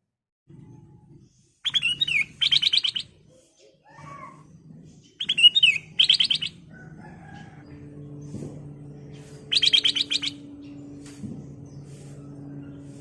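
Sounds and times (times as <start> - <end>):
bird singing whistled notes: 1.6 - 3.2, 5.2 - 6.6, 9.4 - 11.0.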